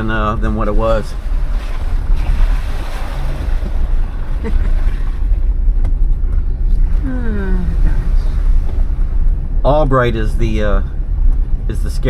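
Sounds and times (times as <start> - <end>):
engine and drivetrain rumble: 0.0 - 12.0.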